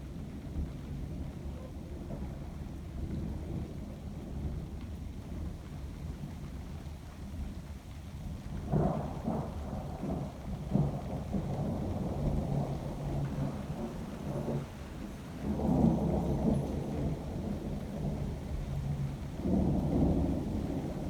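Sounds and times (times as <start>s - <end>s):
thunder rumbling: 8.6s - 21.0s.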